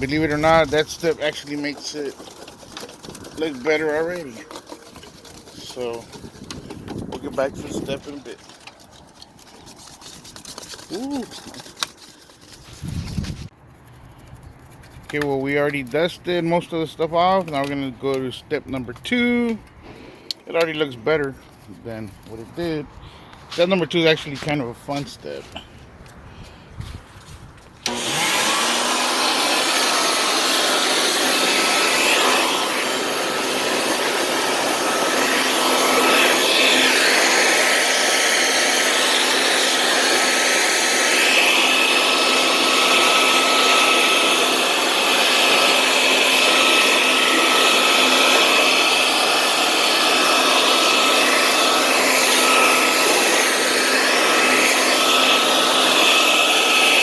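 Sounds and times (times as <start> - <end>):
electric blower motor whining: 0.0 - 9.0, 27.8 - 57.0.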